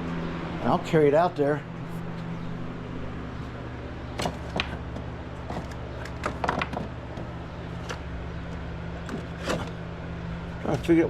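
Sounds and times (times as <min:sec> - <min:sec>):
low electrical hum: 0:00.0 - 0:11.0
objects knocking and clattering: 0:04.2 - 0:07.3.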